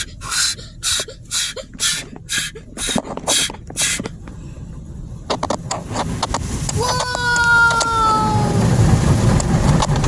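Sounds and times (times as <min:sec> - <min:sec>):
car wash brushes swishing: 0:00.0 - 0:04.2
low rumble: 0:00.0 - 0:06.8.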